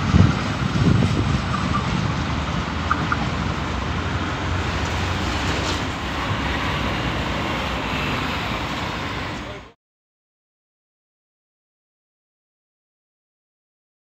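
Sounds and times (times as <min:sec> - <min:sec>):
train wheels rumbling on rails: 0:00.0 - 0:09.8.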